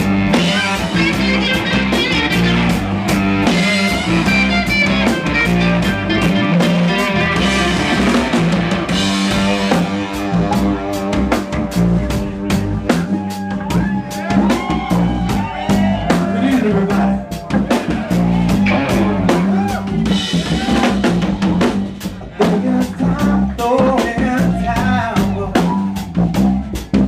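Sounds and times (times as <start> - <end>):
electric guitar: 0.0 - 23.2
low bass notes: 0.0 - 27.0
drum kit hits: 17.7 - 22.0.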